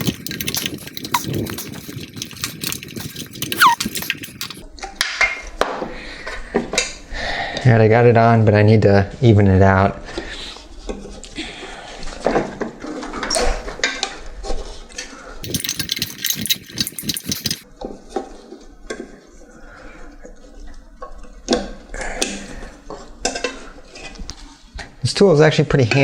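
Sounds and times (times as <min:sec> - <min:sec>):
rubbing scrape: 0:00.0 - 0:04.6, 0:15.4 - 0:17.6
tool clicking and scraping on wheel: 0:00.0 - 0:04.6, 0:15.4 - 0:17.7.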